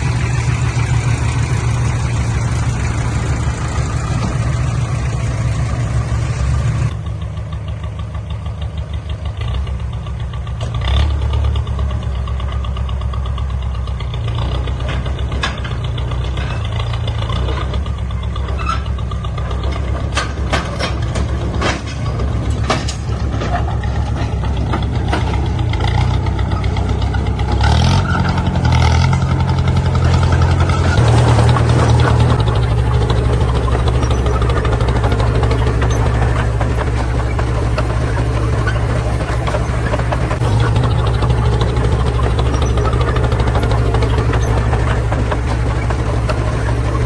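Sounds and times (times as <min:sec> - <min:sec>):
diesel engine running: 0:00.0 - 0:47.0
metallic clanks: 0:14.7 - 0:47.0.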